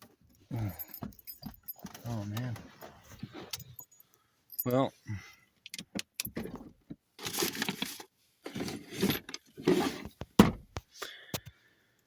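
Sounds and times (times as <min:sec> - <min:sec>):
rustling and scraping: 0:01.2 - 0:04.0, 0:07.2 - 0:10.4.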